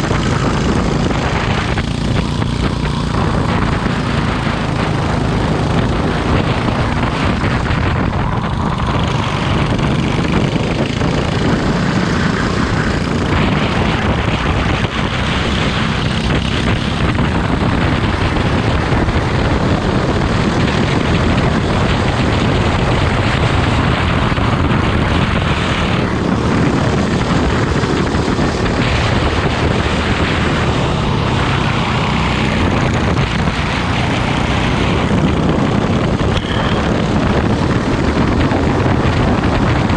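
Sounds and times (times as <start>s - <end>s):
racing kart engine running: 0.0s - 39.9s.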